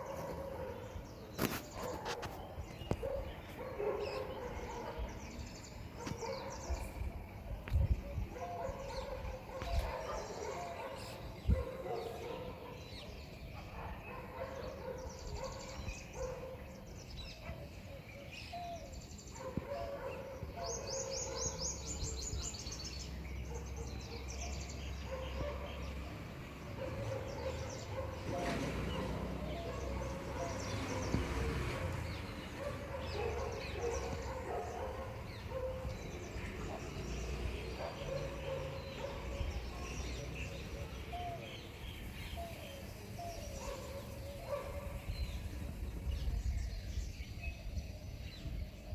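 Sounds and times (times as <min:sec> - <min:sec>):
birds chirping and calling: 0:00.0 - 0:48.9.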